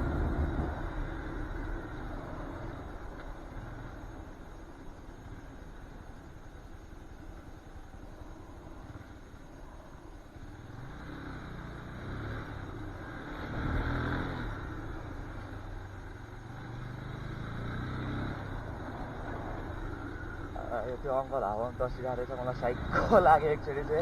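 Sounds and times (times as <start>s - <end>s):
vehicle engine passing: 0.0s - 2.8s, 10.6s - 15.5s.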